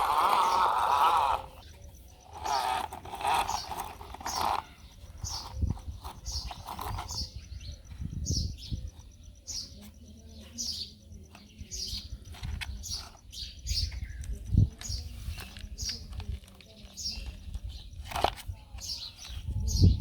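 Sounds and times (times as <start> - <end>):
small bird chirping: 0.0 - 20.0.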